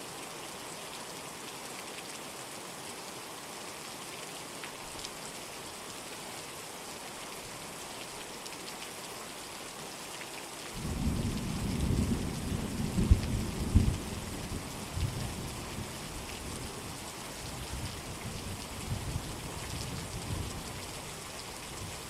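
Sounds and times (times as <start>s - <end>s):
steady rain: 0.0s - 22.0s
thunder rumbling: 10.8s - 15.9s.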